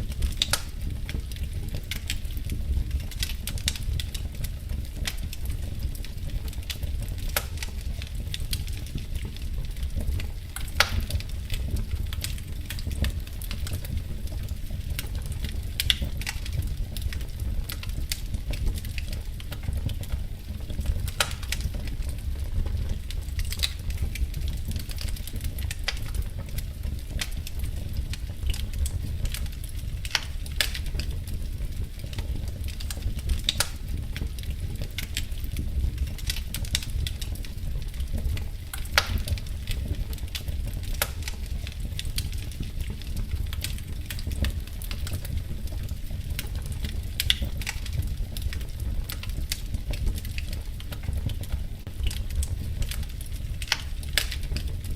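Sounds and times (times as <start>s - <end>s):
wood fire crackling: 0.0s - 54.9s.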